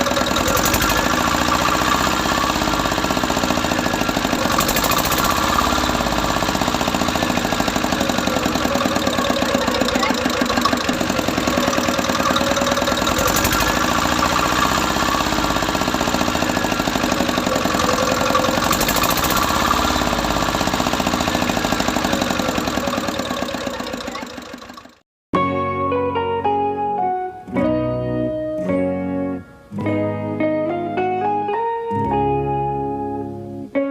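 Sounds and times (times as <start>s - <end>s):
diesel engine knocking steadily: 0.0s - 25.0s.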